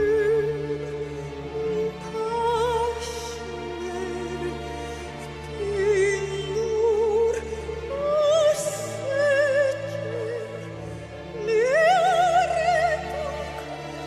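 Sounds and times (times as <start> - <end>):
classical vocal melody with vibrato: 0.0 - 14.0.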